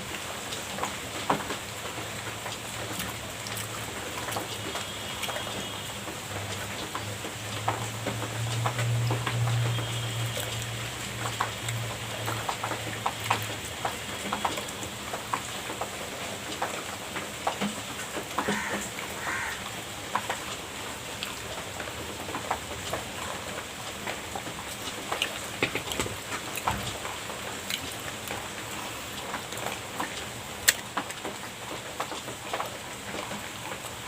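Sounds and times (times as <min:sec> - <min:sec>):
chewing and mouth noises: 0:02.8 - 0:05.7, 0:24.6 - 0:29.8, 0:30.6 - 0:31.2.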